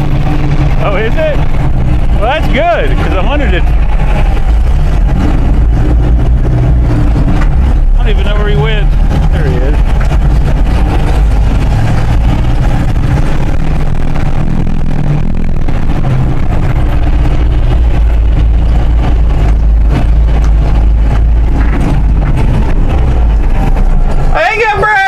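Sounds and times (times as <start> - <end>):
truck engine rumbling: 0.0 - 25.0.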